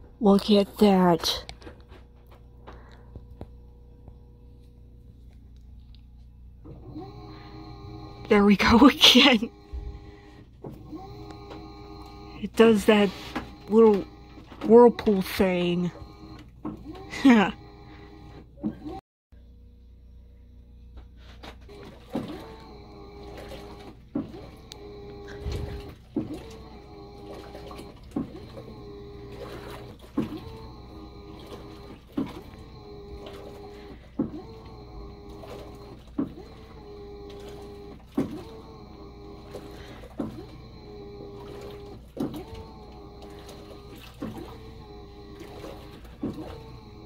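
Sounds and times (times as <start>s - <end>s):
washing machine motor whine: 0.0s - 47.0s
washing machine knocking: 21.7s - 47.0s.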